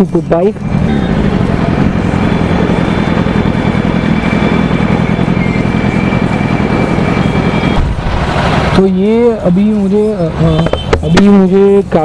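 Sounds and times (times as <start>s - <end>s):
motorcycle engine idling: 0.6s - 7.8s.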